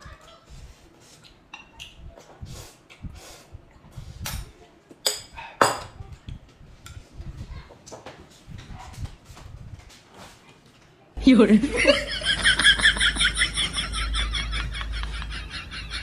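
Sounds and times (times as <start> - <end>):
tableware clinking and knocking: 5.0 - 6.0.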